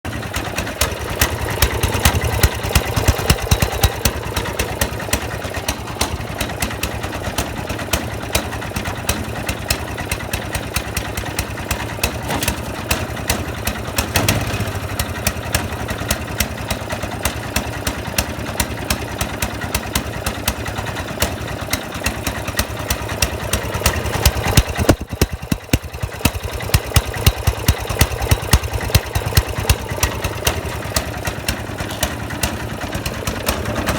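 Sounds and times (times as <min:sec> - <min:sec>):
snowblower engine running rough: 0:00.1 - 0:33.9
engine backfire bangs: 0:11.9 - 0:15.6, 0:24.2 - 0:26.0.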